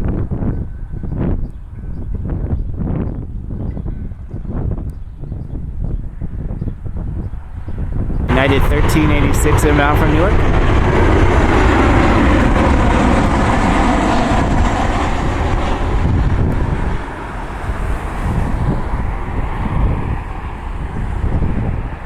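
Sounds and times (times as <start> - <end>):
jet airliner engine rush: 6.2 - 22.0.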